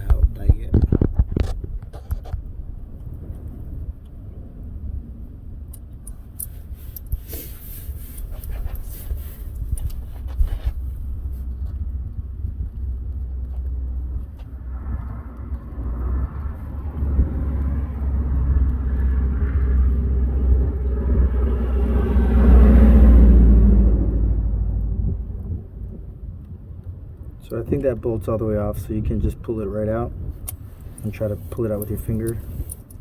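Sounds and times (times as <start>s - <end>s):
steady low rumble: 0.0s - 33.0s
broad rushing noise: 14.2s - 26.6s.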